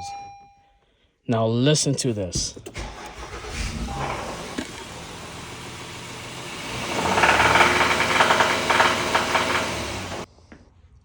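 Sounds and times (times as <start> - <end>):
car engine with rapid rod knock: 2.7 - 10.3.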